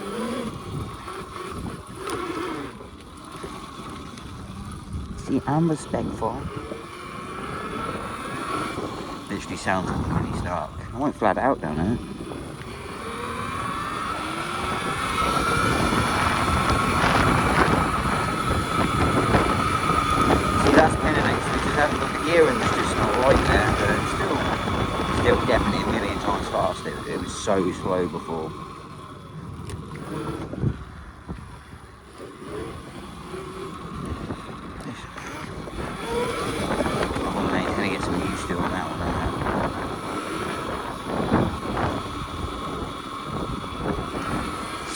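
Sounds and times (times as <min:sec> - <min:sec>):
electric motor whining: 0:00.0 - 0:44.9
wind noise on microphone: 0:00.0 - 0:44.9.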